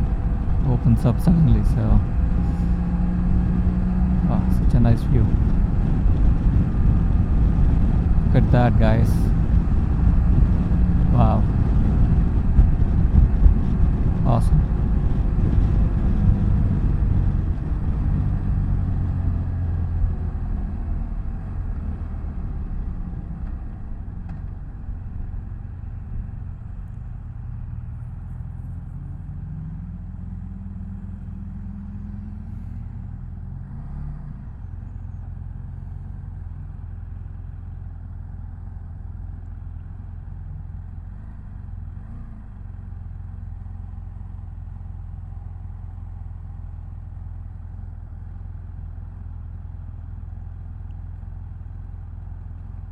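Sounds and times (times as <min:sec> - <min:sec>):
wind rumble: 0:00.0 - 0:39.0
motorcycle engine: 0:00.0 - 0:52.9.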